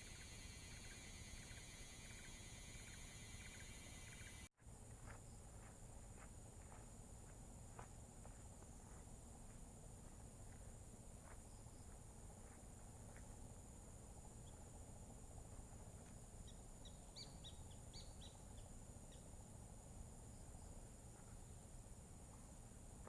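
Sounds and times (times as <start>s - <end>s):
high insect drone: 0.0s - 4.5s.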